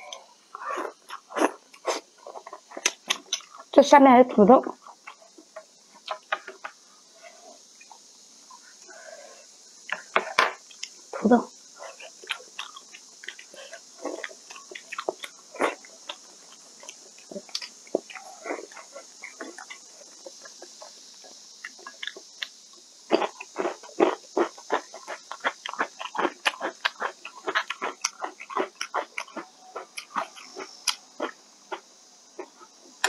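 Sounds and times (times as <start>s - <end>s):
chewing and smacking mouth sounds: 11.9s - 31.8s.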